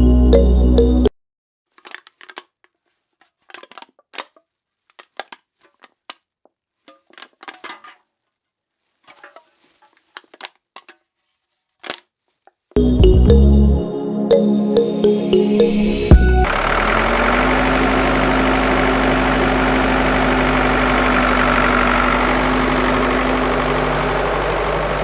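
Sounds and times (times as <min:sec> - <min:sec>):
background music: 0:00.0 - 0:01.1, 0:12.8 - 0:17.1
small objects clicking and crinkling: 0:01.7 - 0:12.8.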